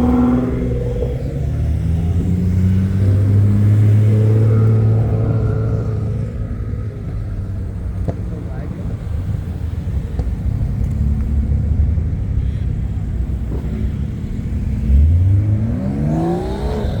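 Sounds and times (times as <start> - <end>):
car engine revving: 0.0 - 8.3, 13.0 - 17.0.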